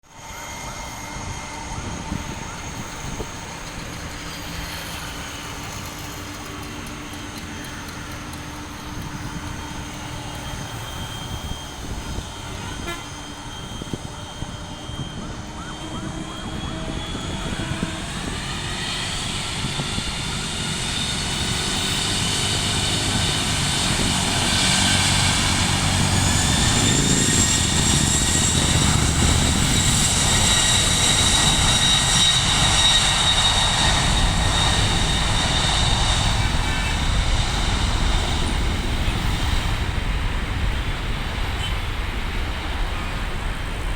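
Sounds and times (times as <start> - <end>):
jet engines spooling up: 0.1 - 43.9.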